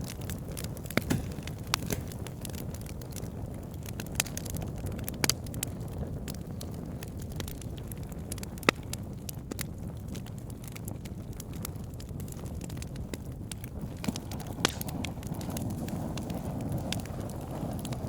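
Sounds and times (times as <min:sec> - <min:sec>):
low rush of flame: 0:00.0 - 0:07.1, 0:13.0 - 0:18.0
wood fire crackling and popping: 0:00.0 - 0:18.0.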